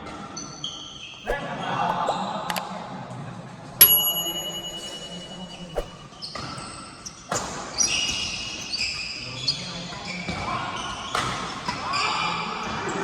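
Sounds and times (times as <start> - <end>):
racket hitting shuttlecock: 1.3 - 2.2, 3.8 - 6.1
racket strings ringing: 3.8 - 6.0
shoe squeaks: 4.2 - 6.1.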